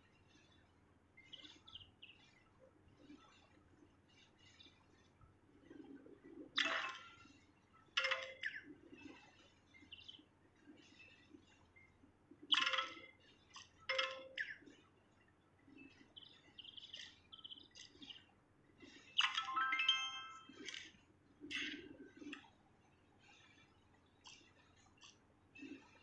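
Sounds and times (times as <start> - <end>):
songbird chirping: 0.0 - 26.0.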